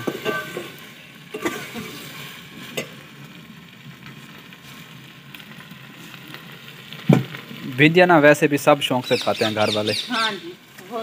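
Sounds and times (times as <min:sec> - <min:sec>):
steel ladle knocking pot: 0:00.0 - 0:00.7
okra sizzling in a pot: 0:00.0 - 0:11.0.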